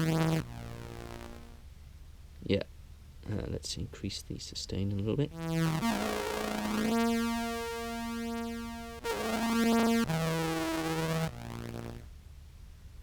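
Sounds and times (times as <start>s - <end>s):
low synth-like clarinet tones: 5.3s - 11.9s.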